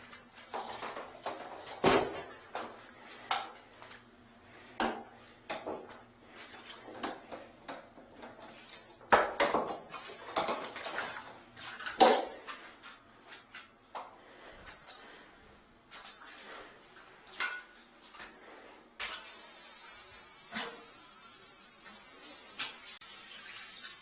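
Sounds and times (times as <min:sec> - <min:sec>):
objects clattering: 0:00.0 - 0:04.0, 0:04.7 - 0:15.2.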